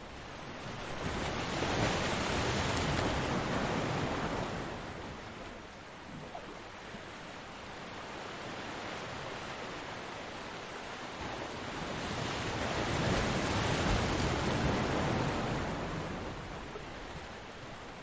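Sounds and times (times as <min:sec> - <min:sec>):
ocean waves breaking: 0:00.5 - 0:05.6, 0:11.2 - 0:17.9.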